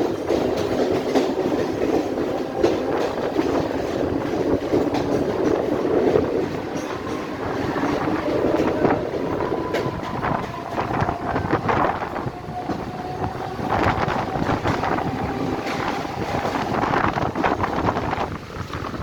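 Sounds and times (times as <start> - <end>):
train carriage rumble and rattle: 0.0 - 19.0
wind buffeting microphone: 0.0 - 19.0.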